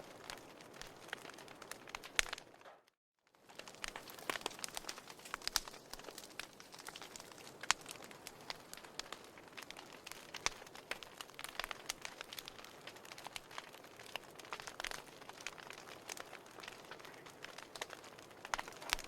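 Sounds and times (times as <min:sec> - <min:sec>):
firewood crackling and popping: 0:00.0 - 0:19.0.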